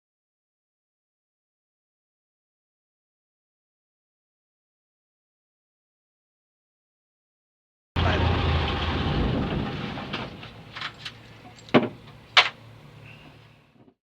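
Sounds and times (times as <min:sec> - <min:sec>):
aircraft engine shutting down: 0:08.0 - 0:13.6.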